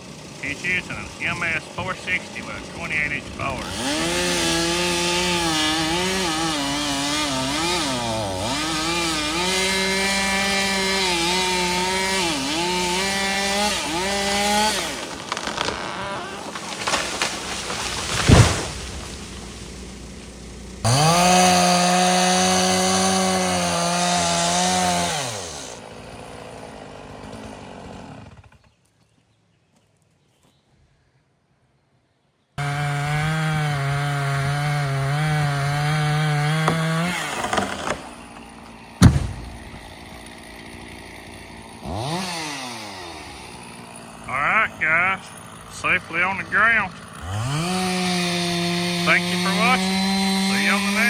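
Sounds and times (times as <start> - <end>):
chainsaw cutting wood: 0.0 - 28.8, 32.6 - 51.0
heavy thump: 36.7 - 40.2.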